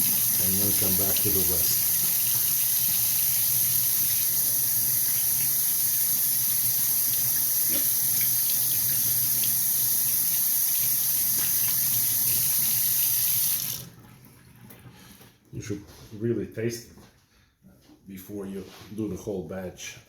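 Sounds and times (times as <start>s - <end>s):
tap running into a sink: 7.0s - 13.9s.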